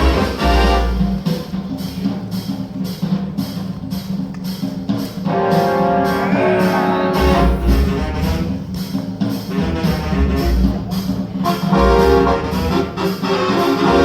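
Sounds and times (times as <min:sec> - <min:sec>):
show music with steady beat: 0:00.0 - 0:14.0
deep bass notes: 0:06.0 - 0:08.9, 0:09.5 - 0:13.0.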